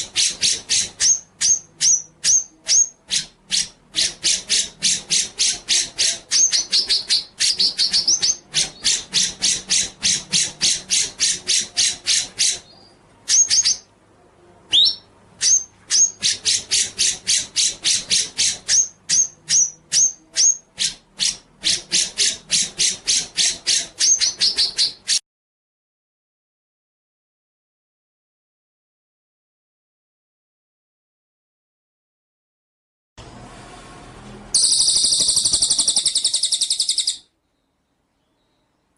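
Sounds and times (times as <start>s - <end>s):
songbird chipping and whistles: 0.1s - 13.9s, 14.7s - 25.2s, 34.6s - 37.3s.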